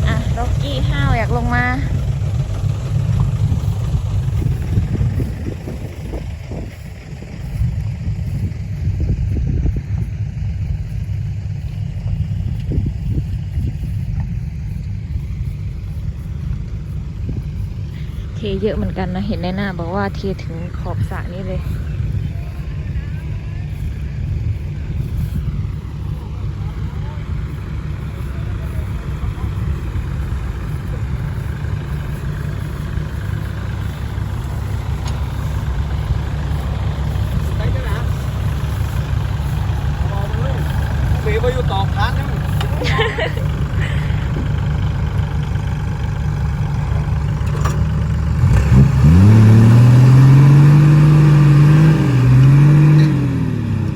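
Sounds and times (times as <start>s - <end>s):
diesel truck engine rumbling: 0.0s - 53.9s.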